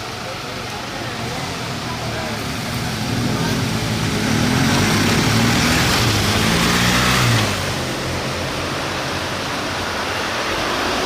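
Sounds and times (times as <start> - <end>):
engine roar: 0.0 - 11.0
rushing noise: 0.0 - 11.0.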